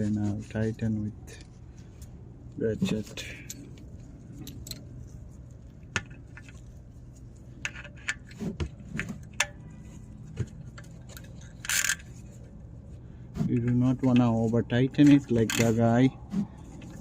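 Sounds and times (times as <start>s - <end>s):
socket ratchet rasping: 10.8s - 12.3s.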